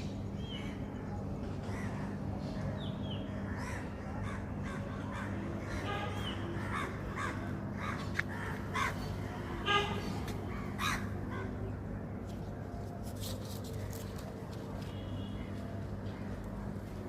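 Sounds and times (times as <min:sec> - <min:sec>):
birds harsh calls: 0:01.6 - 0:09.3, 0:10.0 - 0:11.7.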